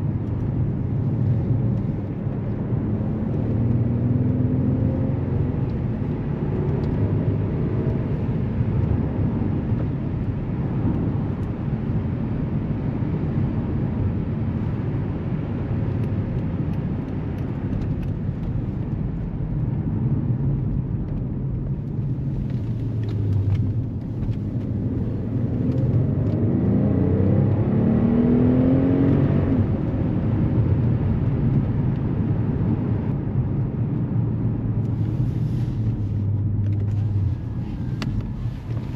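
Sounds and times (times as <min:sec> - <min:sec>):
road and tyre noise: 0:00.0 - 0:38.9
car engine accelerating: 0:00.1 - 0:11.5, 0:21.7 - 0:38.9.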